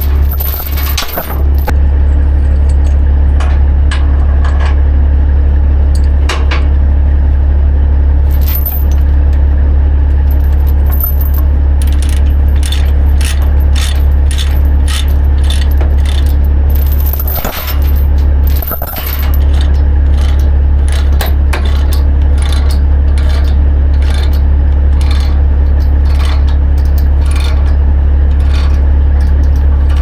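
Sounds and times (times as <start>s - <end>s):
chains clinking against metal: 0.0s - 1.8s, 8.3s - 9.1s, 10.3s - 24.4s
steady low drone: 0.0s - 30.0s.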